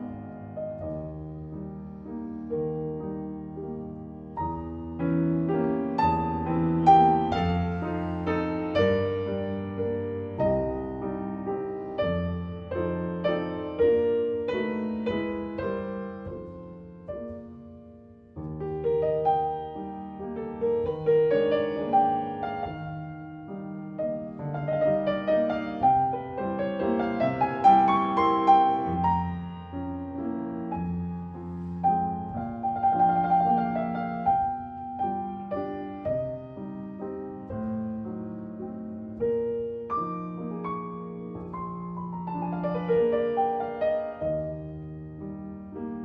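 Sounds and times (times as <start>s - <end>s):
classical solo piano: 0.0s - 46.0s.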